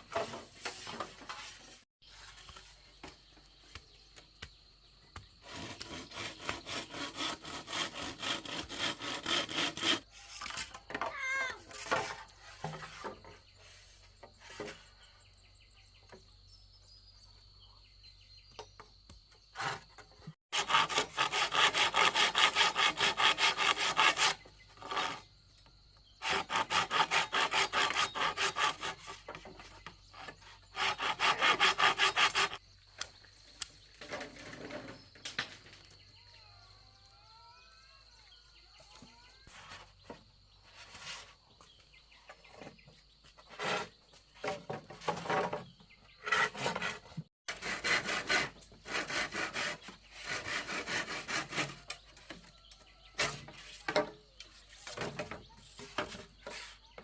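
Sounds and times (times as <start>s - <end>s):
hand saw cutting wood: 5.4s - 10.8s, 19.5s - 25.3s, 26.1s - 32.6s, 43.4s - 54.1s.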